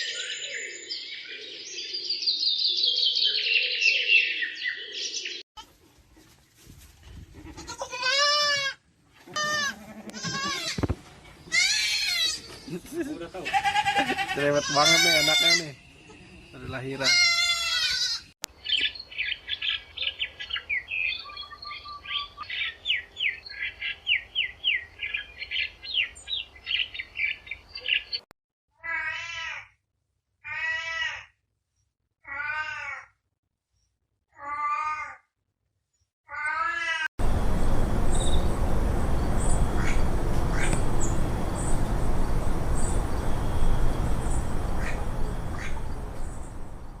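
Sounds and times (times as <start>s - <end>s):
loud steady noise: 37.2s - 47.0s
rapid high chirping: 37.2s - 47.0s.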